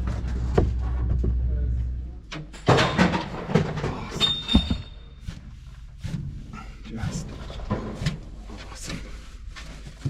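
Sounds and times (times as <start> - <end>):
low hum: 0.0 - 9.4.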